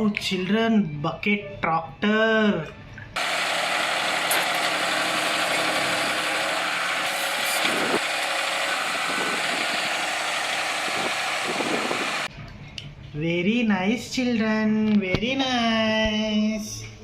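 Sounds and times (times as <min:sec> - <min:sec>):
heavy vehicle engine running: 0:03.2 - 0:12.3.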